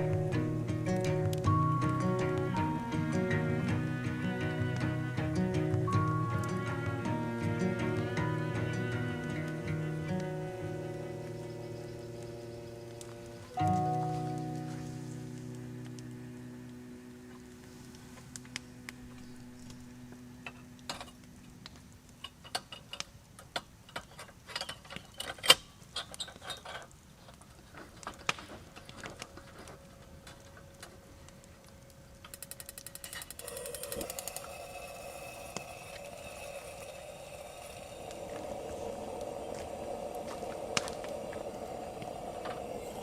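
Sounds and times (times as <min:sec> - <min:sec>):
steady hiss with low buzz: 0:00.0 - 0:43.0
ratchet-like ticks: 0:32.2 - 0:37.0.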